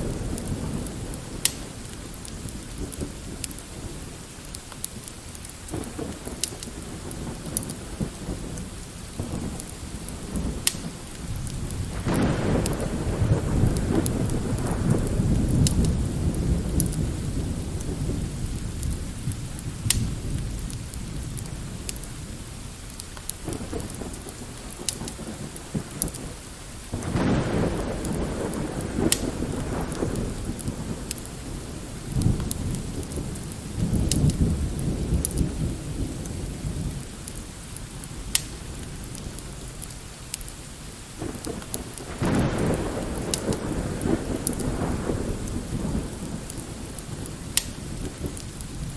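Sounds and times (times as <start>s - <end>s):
distant thunder rolling: 0.0s - 4.3s, 5.7s - 37.4s, 41.2s - 48.9s
light rain: 0.0s - 48.9s
wood fire crackling: 0.0s - 48.9s.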